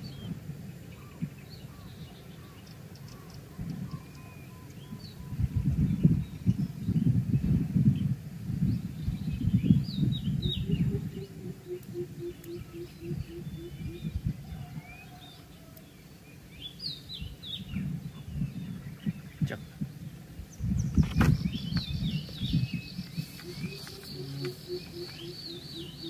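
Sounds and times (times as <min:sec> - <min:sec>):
small birds chirping: 0:00.0 - 0:26.0
low uneven rumble: 0:17.2 - 0:26.0
evenly spaced low notes: 0:21.4 - 0:26.0.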